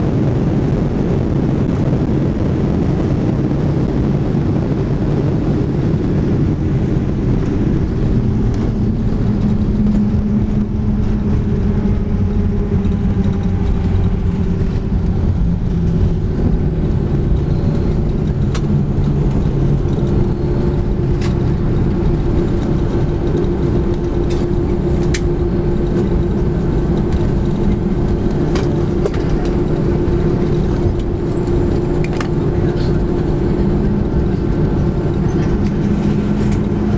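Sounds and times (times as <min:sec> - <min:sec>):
jet engine drone: 0:00.0 - 0:36.9
faint cabin clicks and rattles: 0:11.1 - 0:36.9.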